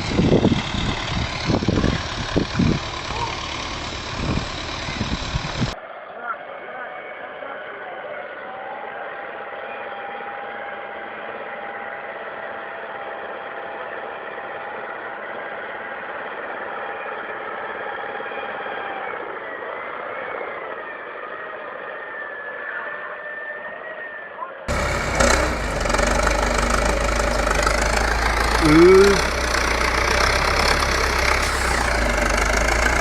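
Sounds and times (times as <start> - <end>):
engine running: 0.0 - 5.8, 24.7 - 33.0.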